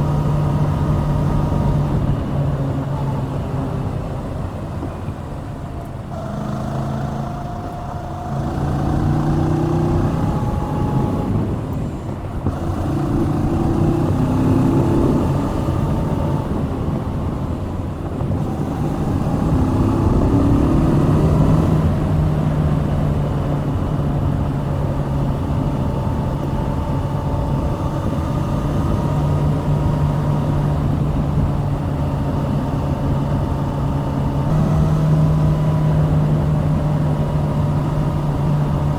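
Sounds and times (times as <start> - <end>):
motorcycle engine revving: 0.0 - 5.0, 5.8 - 38.9.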